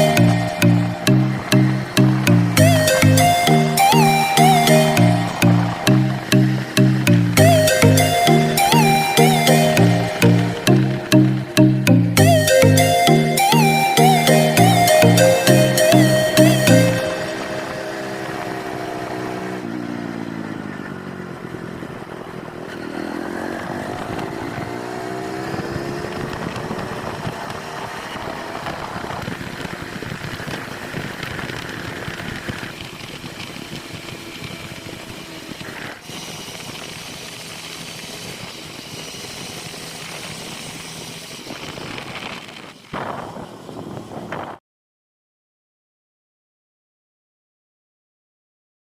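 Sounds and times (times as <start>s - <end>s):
motorcycle engine revving: 0.2s - 3.4s, 17.3s - 42.1s.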